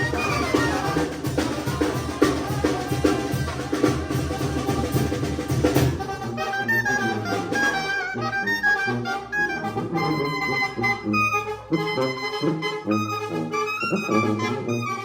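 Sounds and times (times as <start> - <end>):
drums beating: 0.0 - 6.4
brass band music: 0.0 - 15.0.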